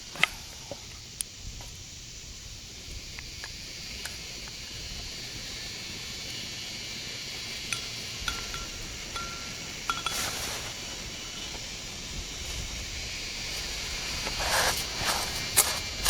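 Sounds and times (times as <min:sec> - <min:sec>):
steady hiss: 0:00.0 - 0:16.0
metal utensils clinking: 0:07.7 - 0:10.6.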